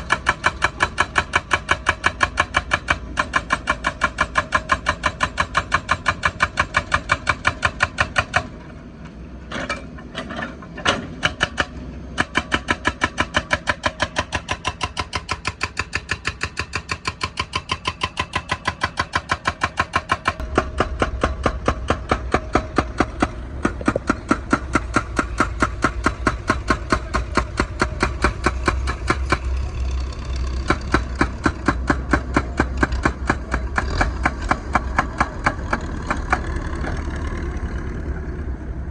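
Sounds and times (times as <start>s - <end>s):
hydraulic breaker hammer pounding asphalt: 0.0s - 8.7s, 9.6s - 37.6s
diesel engine rumble: 13.9s - 38.9s.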